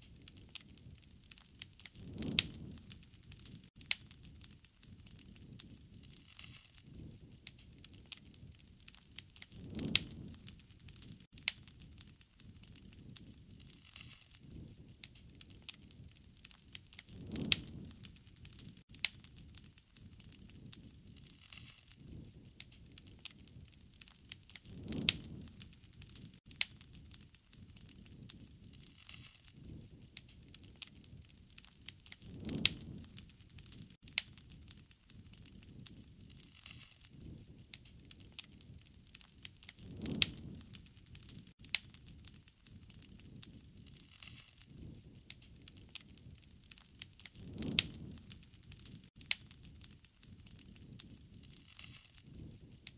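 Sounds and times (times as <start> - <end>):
wood fire crackling: 0.0 - 52.9
flame swell: 2.0 - 2.9, 39.8 - 40.7, 47.4 - 48.4.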